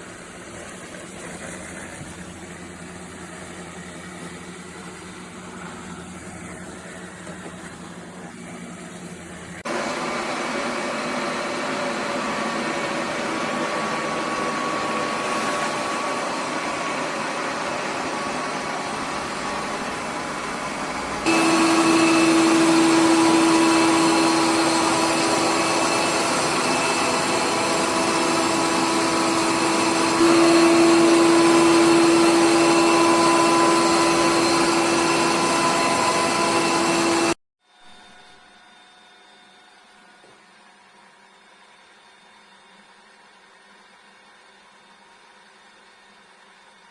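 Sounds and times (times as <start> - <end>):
robot vacuum running: 0.8 - 37.4.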